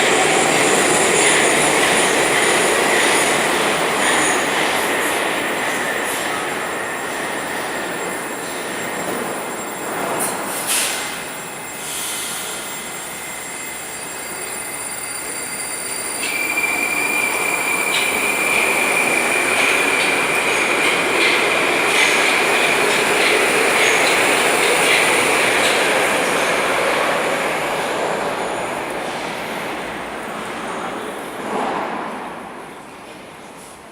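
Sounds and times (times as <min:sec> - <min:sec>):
metro train running on rails: 0:00.0 - 0:33.9
high wheel squeal: 0:05.4 - 0:20.8.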